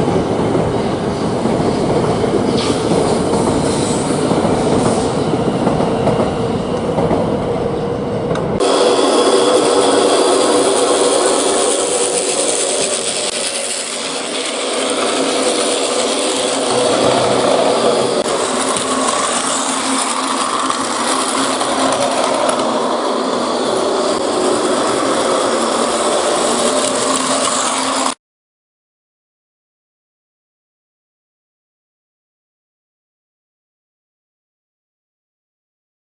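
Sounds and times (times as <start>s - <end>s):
toy train motor whirring: 9.2s - 28.2s
wheels clattering on plastic track: 11.0s - 17.8s, 18.4s - 22.8s.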